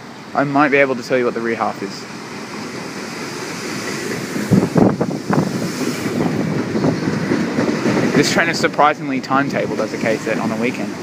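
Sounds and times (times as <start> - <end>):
wind buffeting microphone: 4.1 - 8.7.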